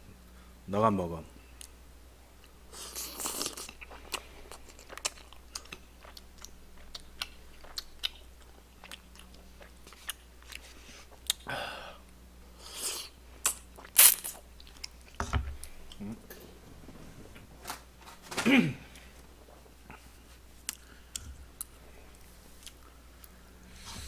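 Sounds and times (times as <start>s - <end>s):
close chewing mouth noises: 2.4s - 11.5s, 19.9s - 23.4s.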